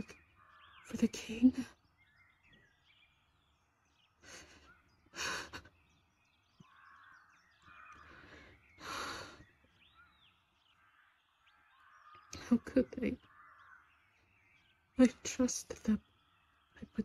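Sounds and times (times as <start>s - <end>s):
faint bird calls: 0.0s - 17.0s
woman breathing hard and sighing: 7.9s - 9.6s.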